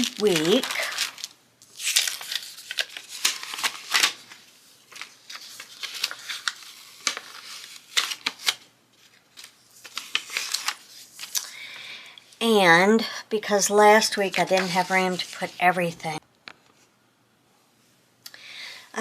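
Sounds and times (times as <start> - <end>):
paper rustling: 0.0 - 11.4, 14.0 - 16.9.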